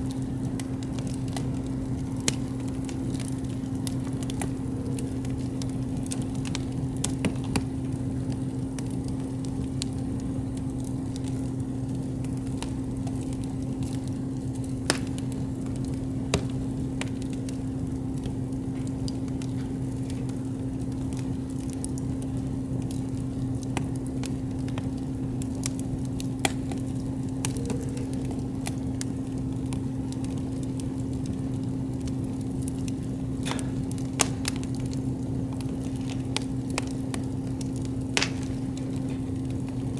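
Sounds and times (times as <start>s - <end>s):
campfire crackling and popping: 0.0s - 39.9s
steady low hum: 0.0s - 39.9s.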